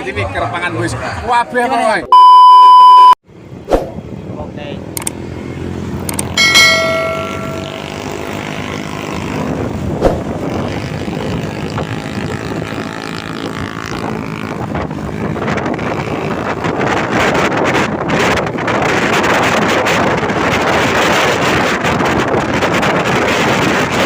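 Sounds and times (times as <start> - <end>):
traffic rushing: 3.3 - 22.6
wind on microphone: 9.0 - 24.0.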